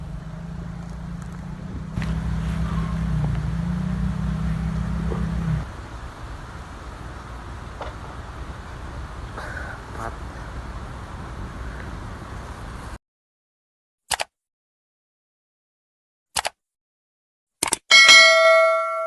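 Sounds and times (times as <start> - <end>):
low rumbling noise: 0.0 - 13.0
vehicle engine humming: 0.0 - 13.0.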